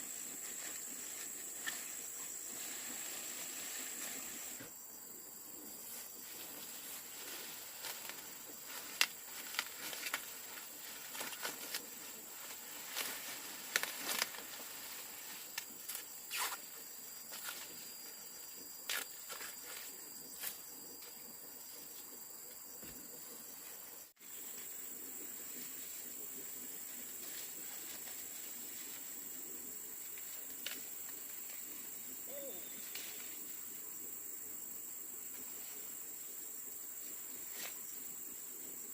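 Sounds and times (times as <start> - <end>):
leaves rustling and crackling: 0.0 - 4.7, 5.8 - 16.7, 24.2 - 33.8
high insect hum: 0.0 - 38.9.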